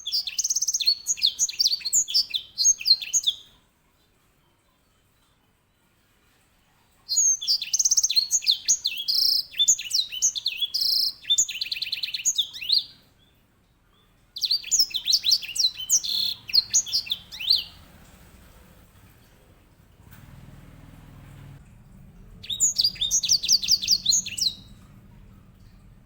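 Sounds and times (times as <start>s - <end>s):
finch singing rolling song: 0.0s - 3.6s, 7.1s - 13.2s, 14.0s - 19.2s, 22.2s - 25.3s.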